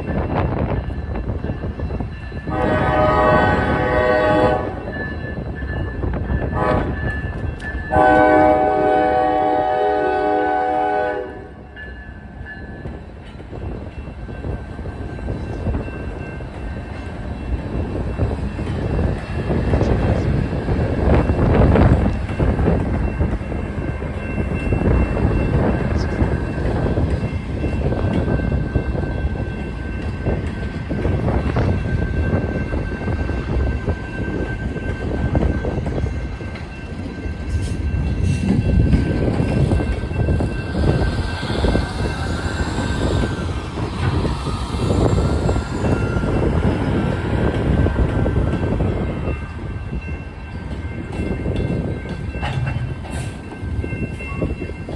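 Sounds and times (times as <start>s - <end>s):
freight train rumble and wheel clatter: 0.0s - 54.9s
locomotive air horn chord: 2.5s - 4.8s, 6.6s - 7.0s, 7.9s - 11.6s.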